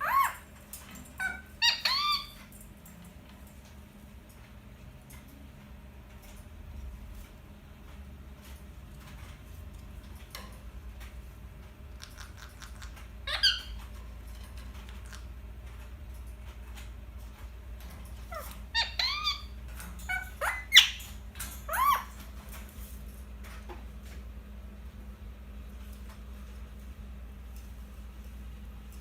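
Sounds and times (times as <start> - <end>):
parakeet squeaky calls: 0.0 - 0.5, 1.1 - 2.5, 12.0 - 13.8, 18.2 - 22.2.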